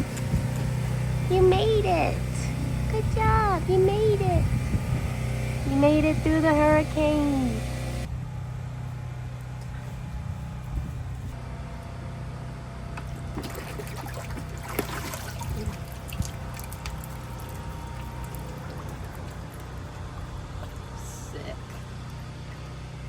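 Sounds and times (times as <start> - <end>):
steady low hum: 0.0 - 23.0
liquid pouring and trickling: 13.4 - 20.8.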